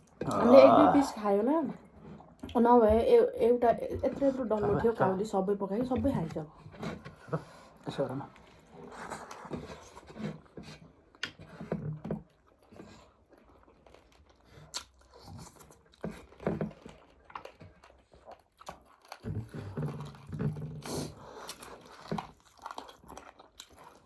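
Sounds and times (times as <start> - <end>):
chewing and biting food: 8.4 - 24.0.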